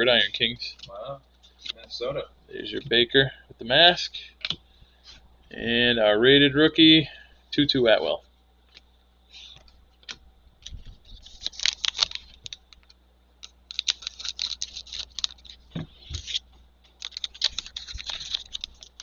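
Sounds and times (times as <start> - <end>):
cards being shuffled: 9.3 - 19.0.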